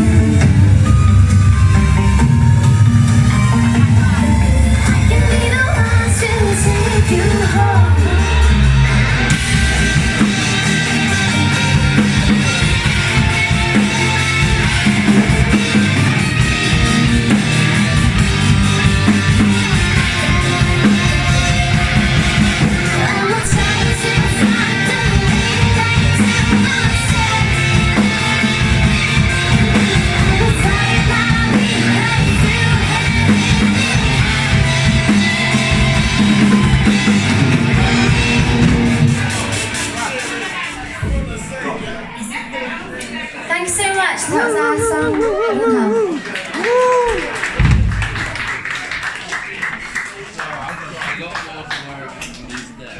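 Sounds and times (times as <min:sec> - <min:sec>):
live rock band playing: 0:00.0 - 0:41.0
person singing: 0:19.9 - 0:34.4.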